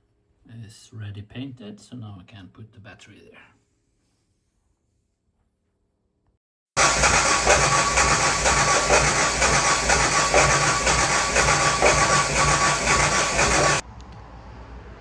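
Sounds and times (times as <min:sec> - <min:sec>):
diesel engine cranking on starter: 0:06.8 - 0:13.8.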